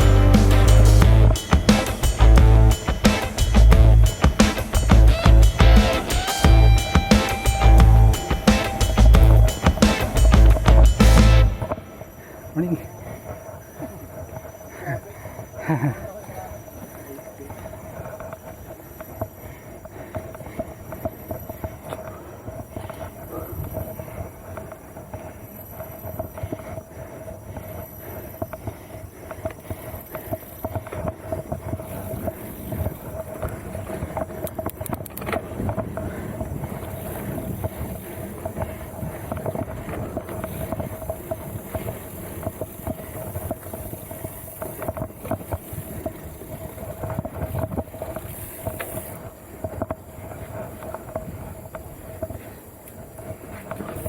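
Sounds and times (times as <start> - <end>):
steady hum: 0.0 - 12.4
bike rattling over rough trail: 0.0 - 54.0.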